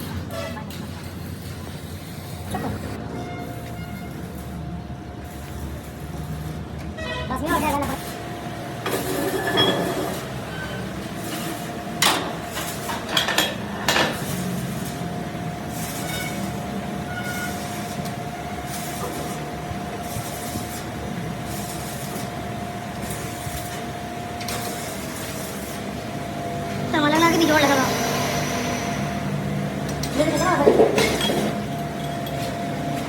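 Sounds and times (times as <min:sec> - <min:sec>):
steady machine whine: 0:22.2 - 0:33.0.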